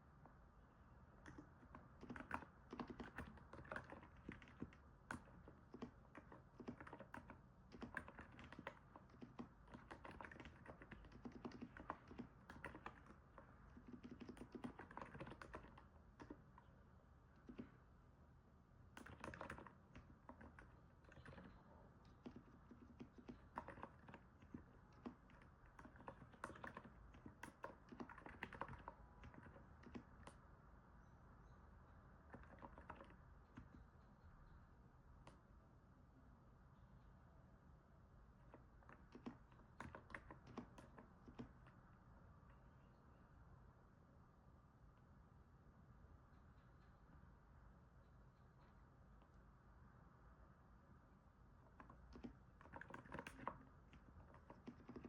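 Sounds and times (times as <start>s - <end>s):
soft keyboard keystrokes: 1.2s - 16.7s, 17.4s - 18.0s, 18.8s - 30.5s, 32.2s - 34.0s, 35.1s - 35.6s, 38.3s - 42.7s, 51.7s - 55.0s.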